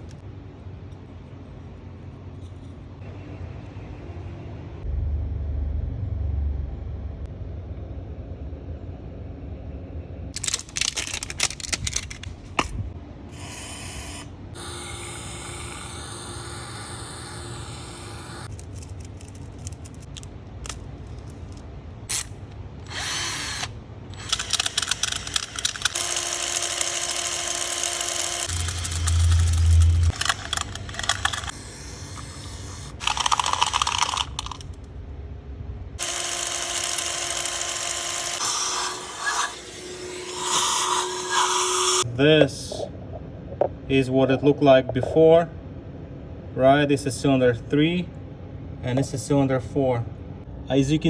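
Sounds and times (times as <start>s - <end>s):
steady low hum: 0.0s - 51.0s
power tool running in bursts: 13.4s - 18.5s, 25.9s - 29.6s, 36.0s - 42.0s.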